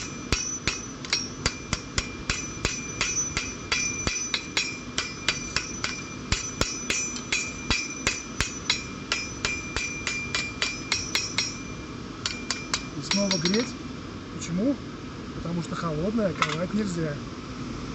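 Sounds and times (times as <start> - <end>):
hammer striking blade on anvil: 0.0 - 13.8.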